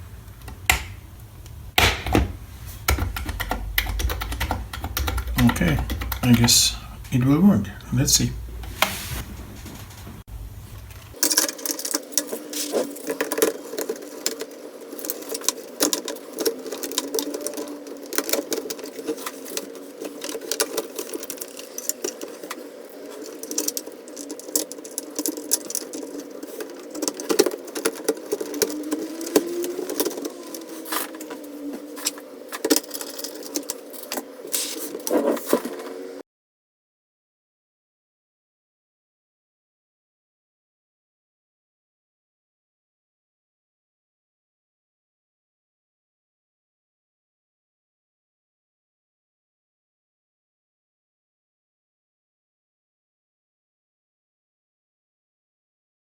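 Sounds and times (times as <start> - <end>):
plastic parts clicking and rattling: 2.8 - 7.1, 10.8 - 36.0.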